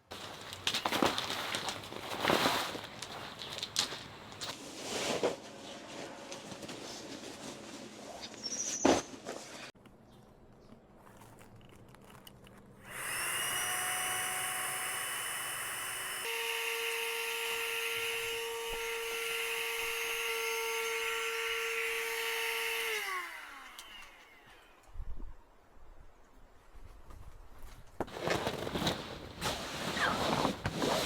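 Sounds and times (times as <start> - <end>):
small electric motor whine: 12.8 - 25.2.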